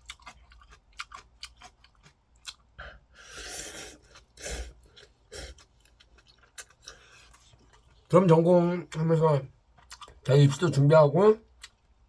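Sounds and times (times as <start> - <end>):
person chewing noodles: 0.0 - 8.1, 9.7 - 10.2.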